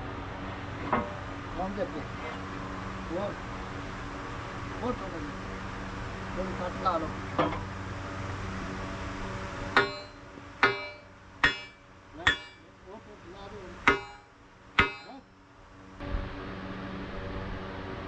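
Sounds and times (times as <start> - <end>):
hammer ringing on steel: 9.8 - 12.7, 13.9 - 15.3.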